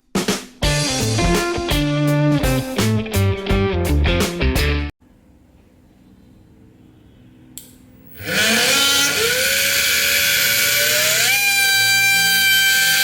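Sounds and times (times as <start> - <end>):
switch click: 7.6 - 7.8
small motor whining: 8.1 - 13.0.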